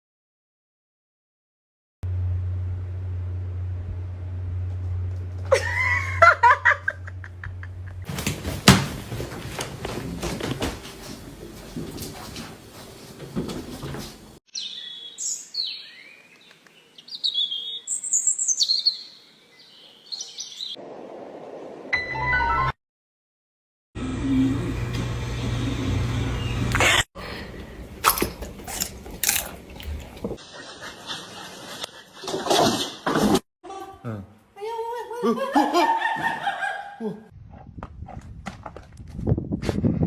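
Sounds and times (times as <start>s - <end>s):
low steady hum: 2.1s - 8.0s
birds chirping and trilling: 14.5s - 20.8s.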